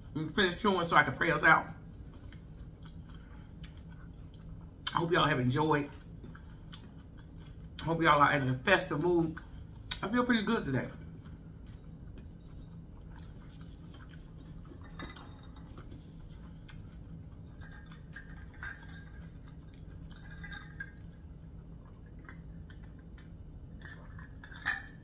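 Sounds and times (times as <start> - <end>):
low steady hum: 0.0 - 25.0
person chewing food: 1.8 - 5.1, 5.8 - 7.9, 10.9 - 25.0.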